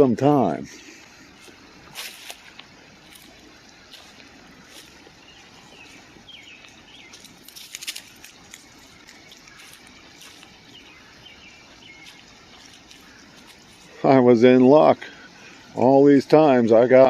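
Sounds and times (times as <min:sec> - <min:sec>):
creek water running: 0:00.0 - 0:17.0
faint bird chirps: 0:03.2 - 0:15.9.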